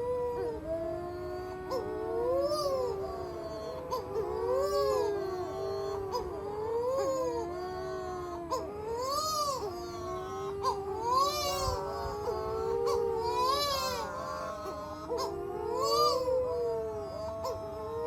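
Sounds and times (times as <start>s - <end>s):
young seabirds wailing: 0.0s - 18.0s
high bird trilling call: 3.8s - 16.4s.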